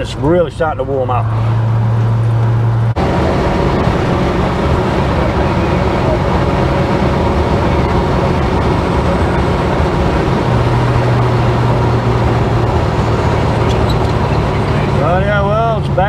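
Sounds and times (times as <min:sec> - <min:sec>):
car engine drone: 0:00.0 - 0:16.0
road noise: 0:00.0 - 0:16.0
low hum: 0:01.2 - 0:16.0.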